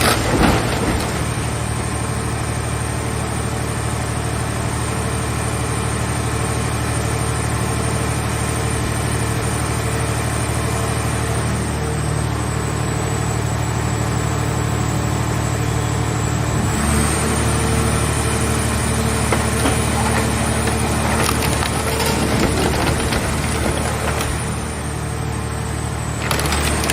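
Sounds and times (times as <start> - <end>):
metal cracking and crunching: 0.0 - 2.4, 18.1 - 26.9.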